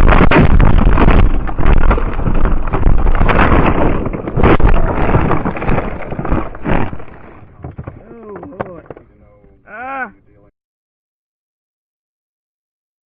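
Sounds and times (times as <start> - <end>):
wind and road noise: 0.0 - 8.0.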